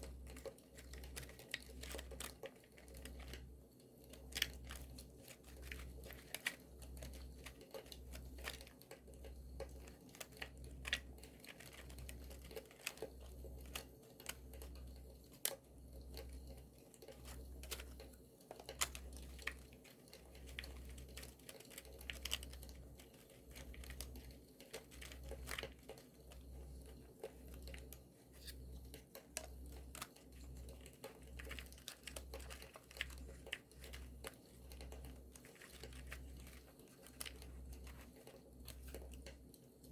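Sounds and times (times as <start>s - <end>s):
paper crinkling and tearing: 18.7s - 26.4s, 29.8s - 39.3s.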